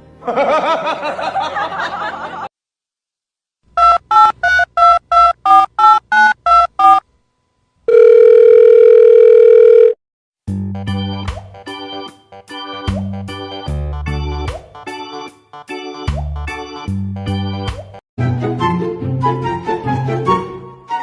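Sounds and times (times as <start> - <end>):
steady telephone tone: 7.9 - 10.0.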